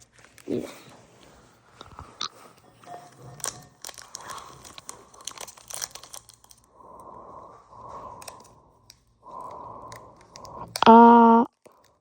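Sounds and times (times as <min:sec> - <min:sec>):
plastic packaging crinkling and tearing: 0:03.3 - 0:06.7
steady hum: 0:06.7 - 0:11.5.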